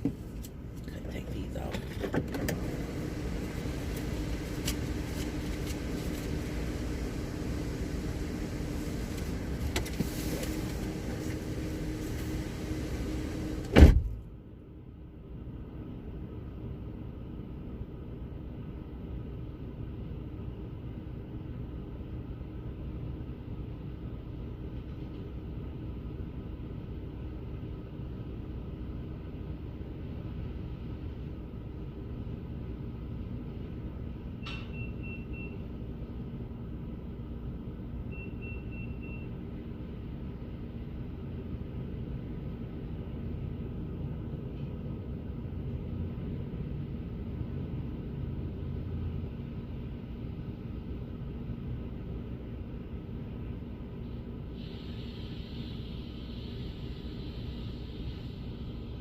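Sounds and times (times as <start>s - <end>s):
car cabin rumble: 0.0s - 14.3s.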